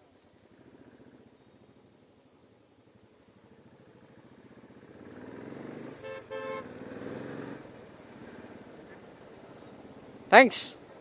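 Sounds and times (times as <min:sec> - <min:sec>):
road vehicle engine noise: 0:00.0 - 0:11.0
vehicle horn toots: 0:06.0 - 0:06.8.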